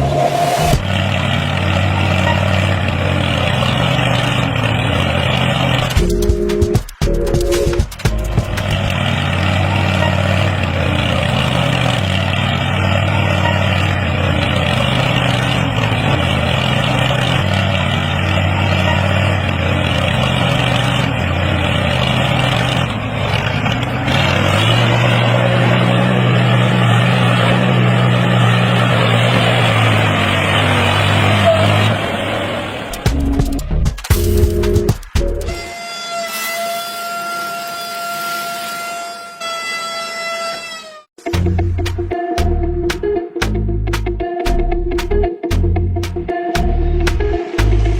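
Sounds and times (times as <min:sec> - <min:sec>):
engine running with low hum: 0:00.0 - 0:35.6
rushing noise: 0:00.0 - 0:36.5.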